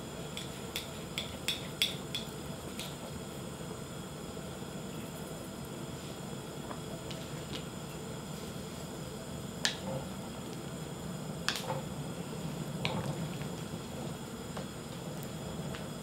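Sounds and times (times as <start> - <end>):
soup boiling: 10.1 - 16.0.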